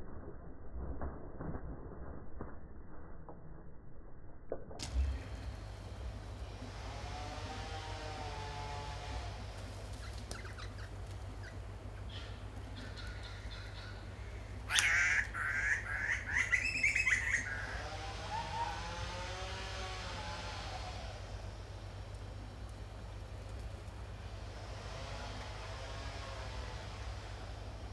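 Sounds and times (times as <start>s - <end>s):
faint wavering bird calls: 5.2s - 24.0s
loud harsh bird call: 7.5s - 19.5s.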